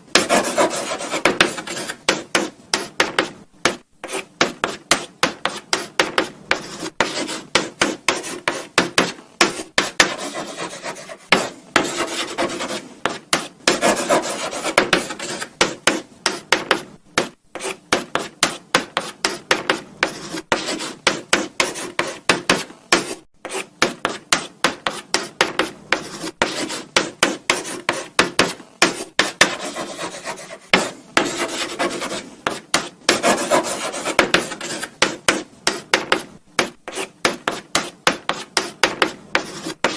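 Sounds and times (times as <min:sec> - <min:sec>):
chalk scratching on a blackboard: 0:00.1 - 0:39.9.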